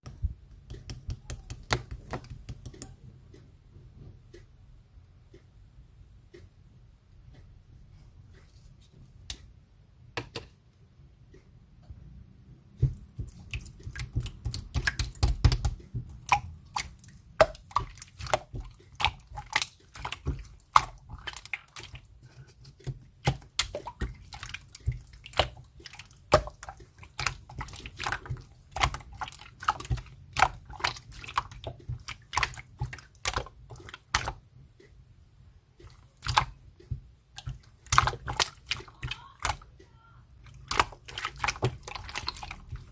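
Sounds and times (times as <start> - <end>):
slime clicking and popping: 13.2 - 22.0, 35.8 - 39.7.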